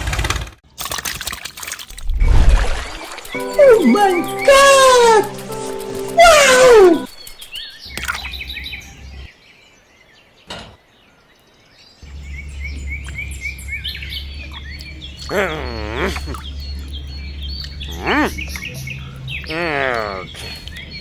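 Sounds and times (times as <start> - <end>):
birds chirping: 2.0 - 21.0
wavering pitched cry: 3.4 - 7.4.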